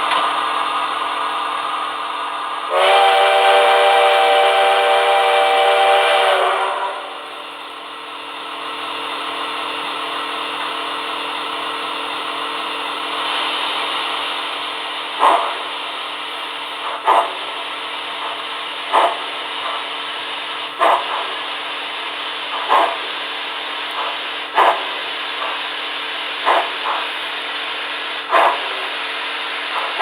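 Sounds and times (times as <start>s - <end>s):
multi-note steam whistle: 2.7s - 7.5s
steam hiss: 13.0s - 30.0s.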